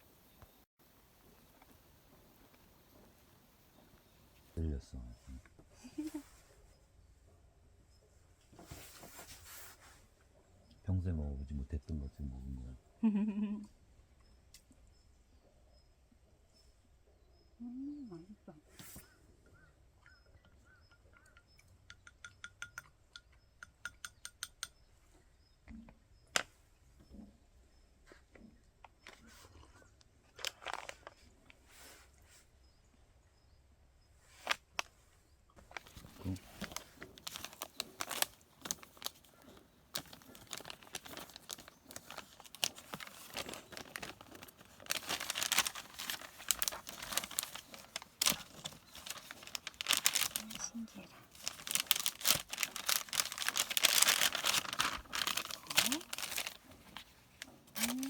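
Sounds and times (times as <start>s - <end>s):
packaging crinkling and rustling: 30.3s - 31.3s, 35.6s - 58.0s.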